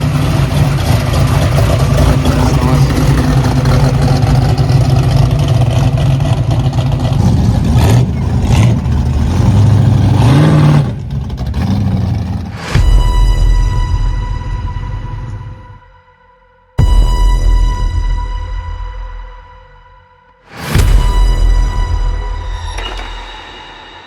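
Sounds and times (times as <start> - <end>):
car engine running and revving: 0.0 - 15.7.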